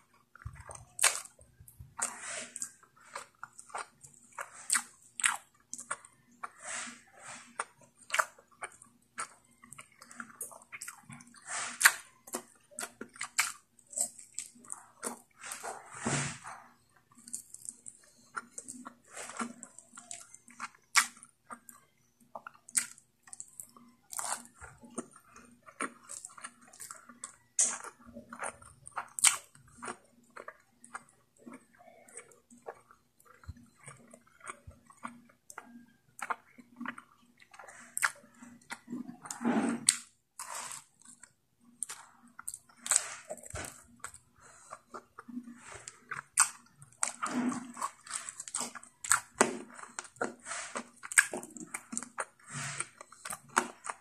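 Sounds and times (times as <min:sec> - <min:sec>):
person chewing and biting food: 0:00.0 - 0:54.0.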